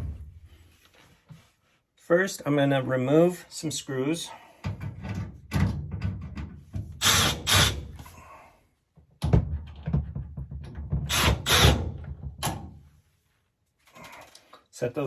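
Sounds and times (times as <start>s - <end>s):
power drill backing out screws: 7.0s - 8.1s, 11.1s - 11.9s.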